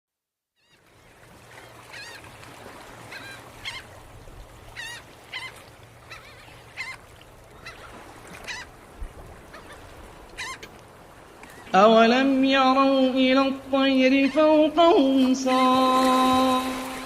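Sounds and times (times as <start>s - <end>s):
birds calling: 3.0s - 4.0s, 4.6s - 11.8s, 13.8s - 17.0s.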